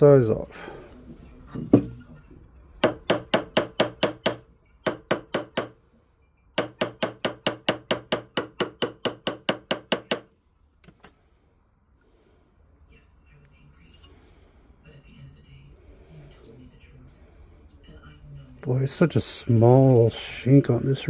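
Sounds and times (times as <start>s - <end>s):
hammer tapping metal ring: 2.8s - 5.8s, 6.6s - 10.3s.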